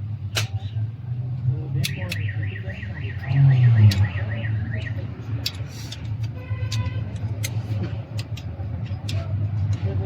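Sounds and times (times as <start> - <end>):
sharp clicks and knocks: 0.2 - 0.7, 5.4 - 10.0.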